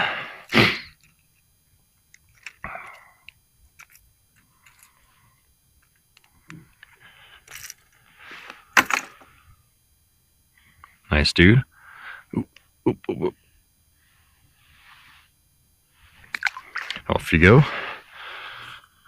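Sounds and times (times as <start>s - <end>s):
small clicks and light rattles: 1.0s - 5.1s.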